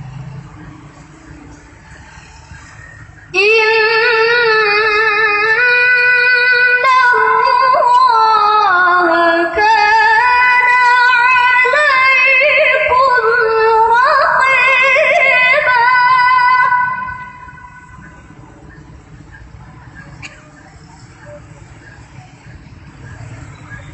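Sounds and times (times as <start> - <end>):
person chanting melismatic recitation: 3.3 - 18.3.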